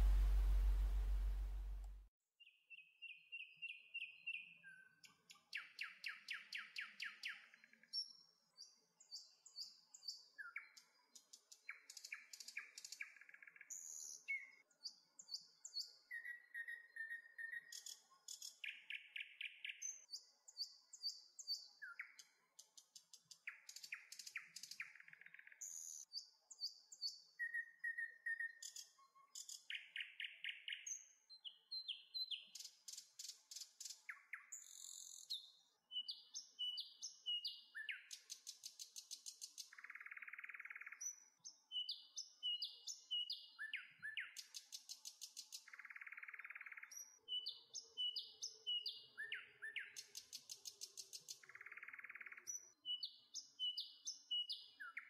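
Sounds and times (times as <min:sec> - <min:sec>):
birds singing: 0:00.0 - 0:01.8, 0:23.5 - 0:38.4, 0:39.2 - 0:55.0.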